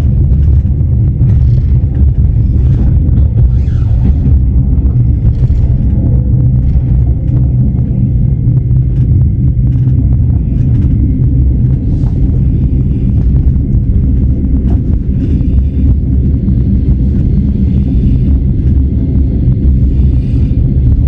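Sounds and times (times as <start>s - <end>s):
train carriage rumbling: 0.0s - 21.0s.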